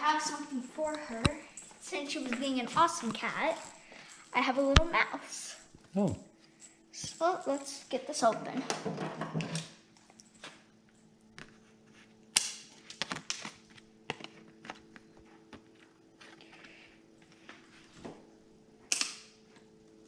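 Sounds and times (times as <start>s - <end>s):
faint steady hum: 0.0s - 20.0s
packaging being opened by hand: 12.4s - 16.6s.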